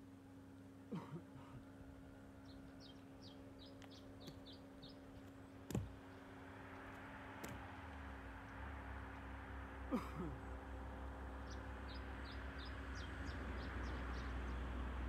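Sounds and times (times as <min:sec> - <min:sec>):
faint steady hum: 0:00.0 - 0:15.0
small bird chirping: 0:02.4 - 0:06.3.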